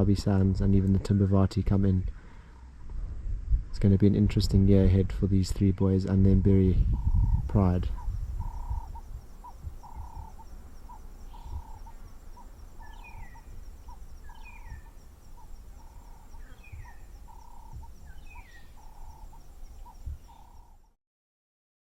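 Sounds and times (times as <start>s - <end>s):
high insect trill: 6.8s - 21.0s.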